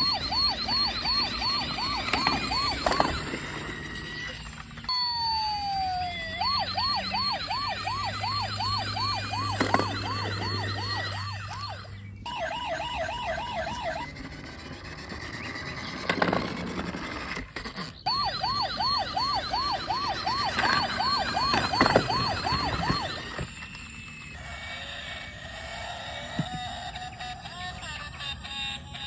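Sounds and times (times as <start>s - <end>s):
toy police siren wailing: 0.0s - 29.0s.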